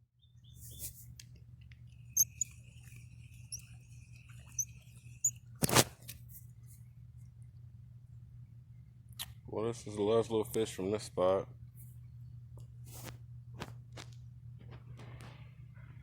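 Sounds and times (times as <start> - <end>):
low steady hum: 0.0 - 16.0
faint high chirps: 2.1 - 5.4
thin high buzz: 2.1 - 5.4.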